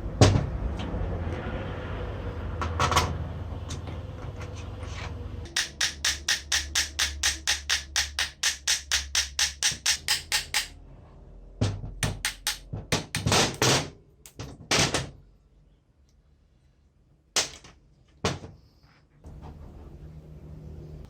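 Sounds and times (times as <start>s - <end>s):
fast sharp tapping: 5.5s - 10.8s, 12.0s - 13.7s.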